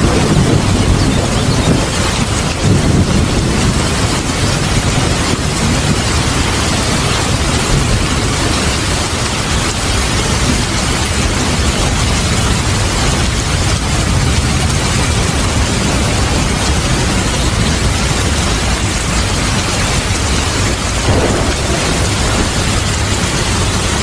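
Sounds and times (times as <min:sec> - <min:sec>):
heavy rain: 0:00.0 - 0:24.0
rolling thunder: 0:00.0 - 0:24.0.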